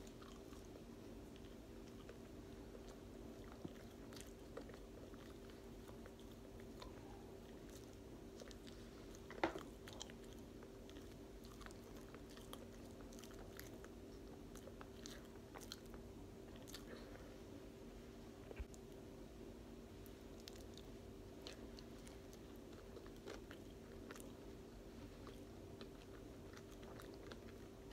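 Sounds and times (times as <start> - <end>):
steady hum: 0.0 - 27.9
chewing mouth clicks and smacks: 25.2 - 27.9.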